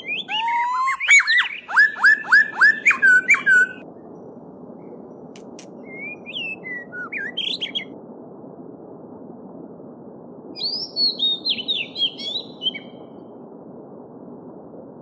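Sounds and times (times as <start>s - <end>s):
songbird whistling song: 0.0s - 3.8s, 5.8s - 8.0s, 10.6s - 13.2s
soft bird calls: 0.0s - 4.1s, 4.8s - 8.0s, 10.6s - 13.2s.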